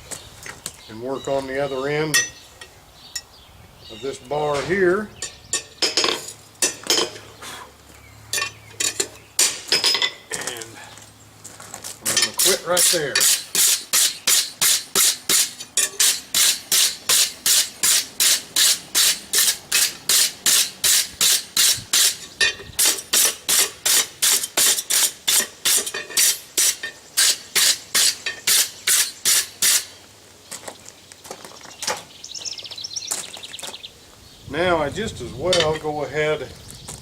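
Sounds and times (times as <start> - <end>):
steel bar scraping strokes: 12.4 - 29.9.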